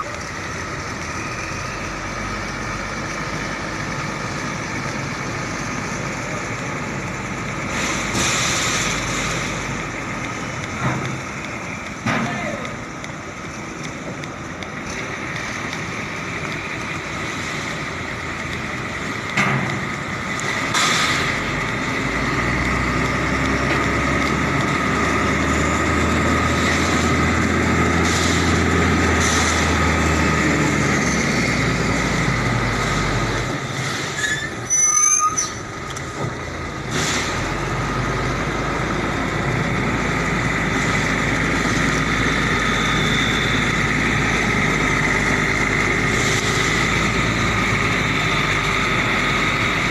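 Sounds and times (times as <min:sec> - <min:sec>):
truck engine drone: 0:00.0 - 0:49.9
steady high squeal: 0:34.1 - 0:35.7
wavering high squeaks: 0:34.2 - 0:35.7.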